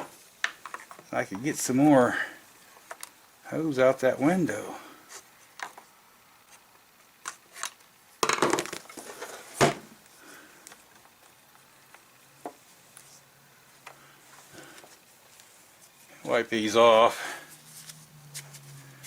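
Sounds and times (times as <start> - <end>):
small parts clicking and knocking: 0.0 - 1.1.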